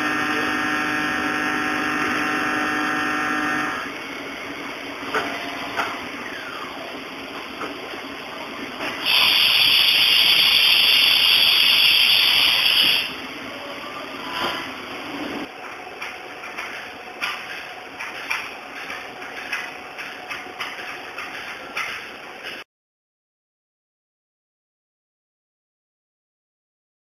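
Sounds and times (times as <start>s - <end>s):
machine low hum: 0.0s - 9.0s
loud steady hiss: 9.0s - 13.3s.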